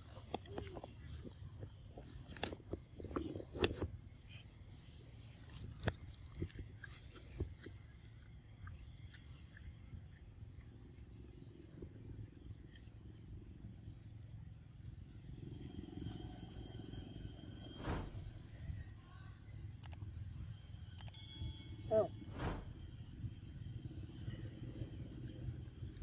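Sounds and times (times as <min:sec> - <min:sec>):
low background rumble: 0:00.0 - 0:26.0
bird calling: 0:21.9 - 0:22.3.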